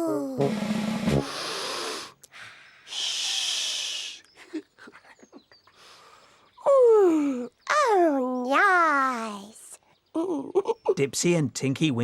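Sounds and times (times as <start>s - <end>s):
long breathy sniffs: 1.2s - 4.2s.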